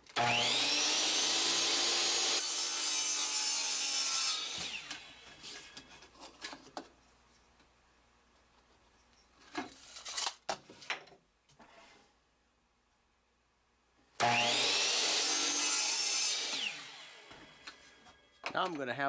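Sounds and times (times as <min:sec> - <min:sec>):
electric saw cutting wood: 0:00.0 - 0:05.4, 0:14.2 - 0:18.1.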